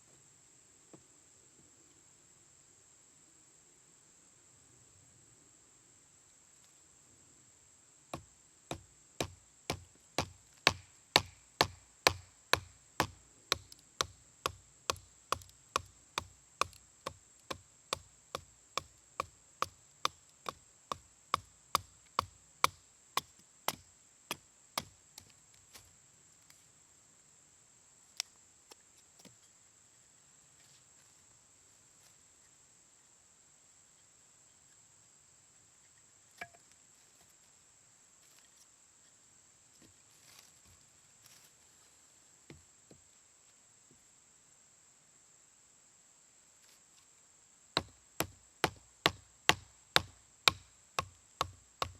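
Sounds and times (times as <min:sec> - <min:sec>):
insects chirping: 0:00.0 - 0:51.9
wood being struck: 0:08.2 - 0:17.6.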